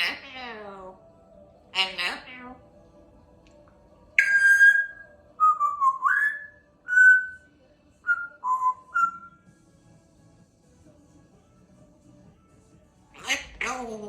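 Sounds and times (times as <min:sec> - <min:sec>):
parrot whistling a tune: 0:04.2 - 0:09.5.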